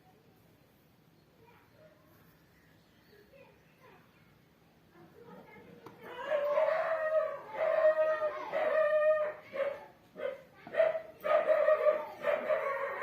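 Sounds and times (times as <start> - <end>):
dog whining and howling: 6.1 - 9.8, 11.3 - 13.0.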